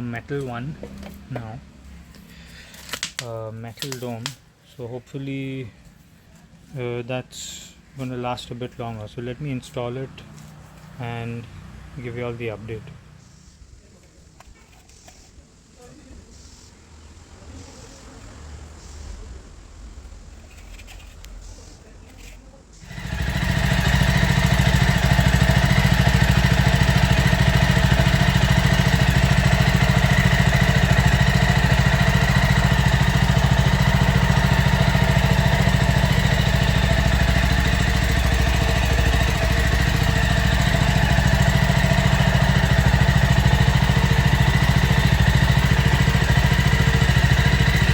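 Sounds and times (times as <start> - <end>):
motorcycle engine idling: 22.8 - 47.9.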